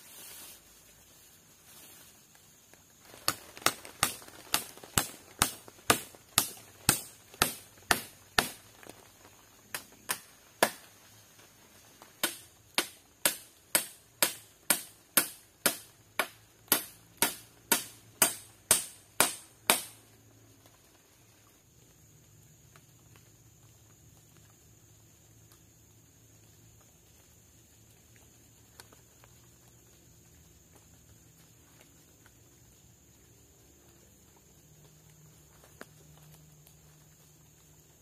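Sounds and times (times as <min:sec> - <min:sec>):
hand tool striking wood: 0:03.3 - 0:08.6, 0:09.7 - 0:10.9, 0:12.2 - 0:20.0.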